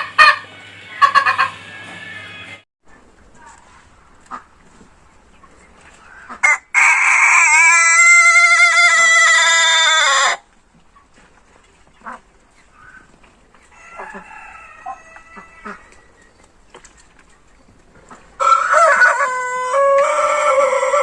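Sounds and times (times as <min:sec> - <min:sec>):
rooster crowing: 0:06.4 - 0:10.4, 0:13.7 - 0:16.1, 0:18.4 - 0:21.0.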